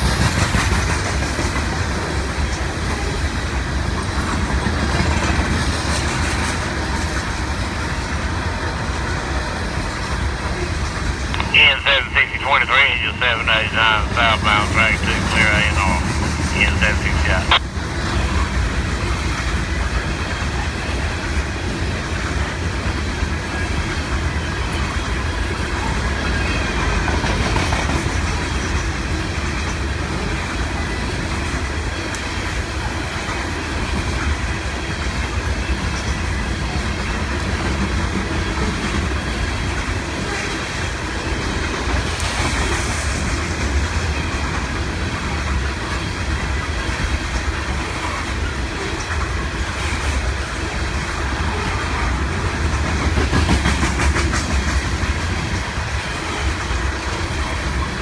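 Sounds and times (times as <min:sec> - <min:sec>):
steel wheels rumbling on rails: 0:00.0 - 0:11.5, 0:12.5 - 0:58.0.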